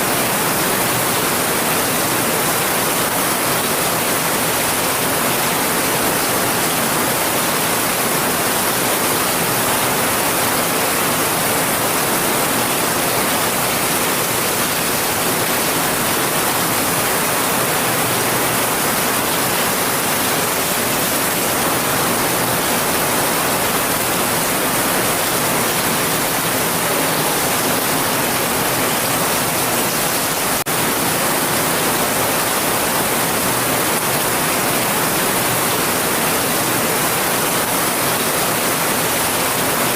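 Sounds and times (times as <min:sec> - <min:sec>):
heavy rain hissing: 0:04.6 - 0:35.9.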